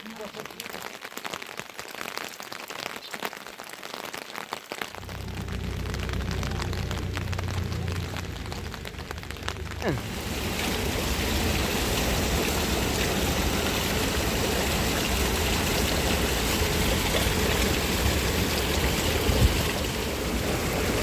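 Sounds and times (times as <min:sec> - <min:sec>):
running water rushing: 0:04.9 - 0:21.0.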